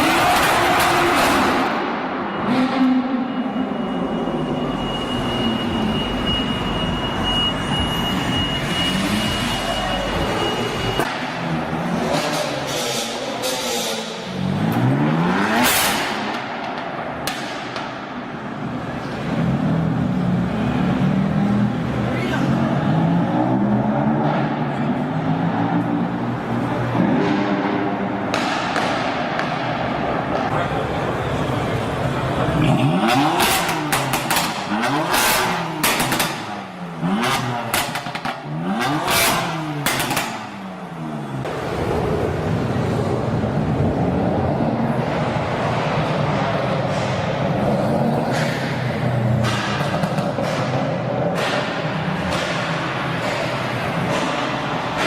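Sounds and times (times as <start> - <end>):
car engine revving: 8.0 - 55.0
car engine revving hard: 11.7 - 16.4, 32.5 - 40.6.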